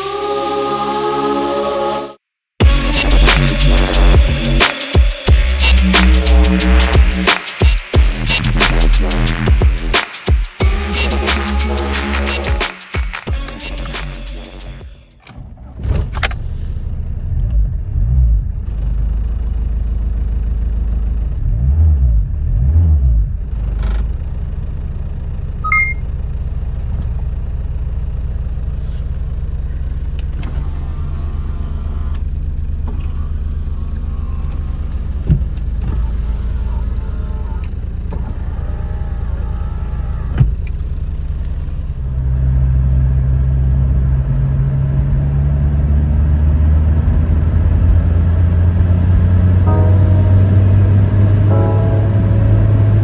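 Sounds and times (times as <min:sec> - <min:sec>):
diesel engine rumble: 0:13.4 - 0:53.0.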